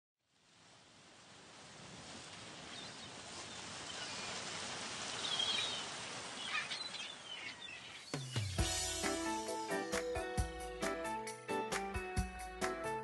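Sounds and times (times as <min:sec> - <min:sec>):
music with low note and drums: 0:08.2 - 0:13.0.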